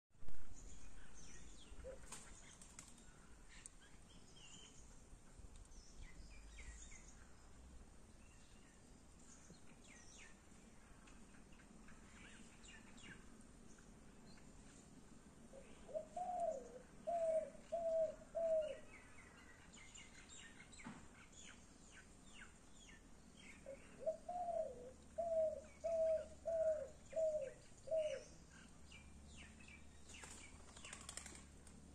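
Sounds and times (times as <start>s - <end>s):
small birds chirping: 0.5s - 31.6s
bird hooting: 15.6s - 18.9s, 23.7s - 28.3s.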